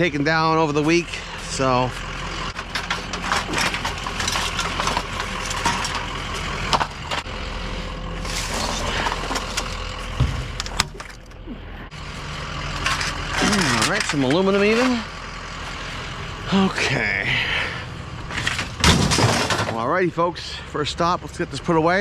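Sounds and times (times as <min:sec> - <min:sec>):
engine idling: 0:00.0 - 0:22.0
junk knocking and clattering: 0:01.5 - 0:07.3, 0:08.2 - 0:11.4, 0:12.6 - 0:15.1, 0:18.2 - 0:19.9.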